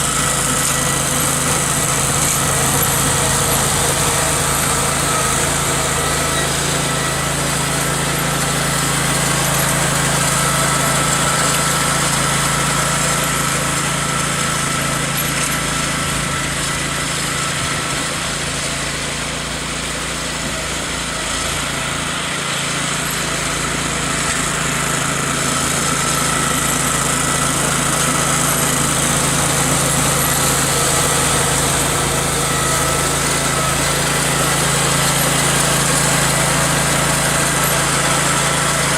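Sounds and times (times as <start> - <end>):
snowblower whine: 0.0 - 38.9
tractor engine running: 0.0 - 38.9.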